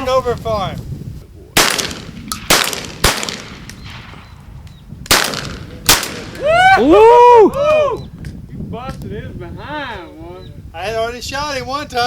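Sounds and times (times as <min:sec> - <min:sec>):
shotgun shots with echo: 0:01.6 - 0:04.4, 0:05.1 - 0:06.4.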